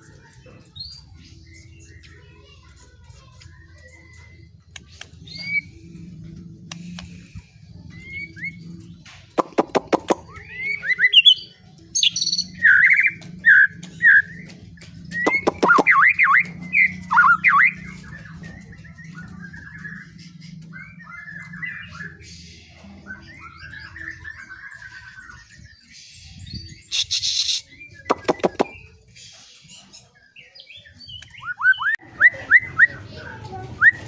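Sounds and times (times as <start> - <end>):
chattering trills: 0.0 - 34.0
songbird singing: 0.0 - 34.0
sharp bird clicks: 4.7 - 5.2, 9.2 - 10.5, 12.0 - 16.4, 26.9 - 28.9.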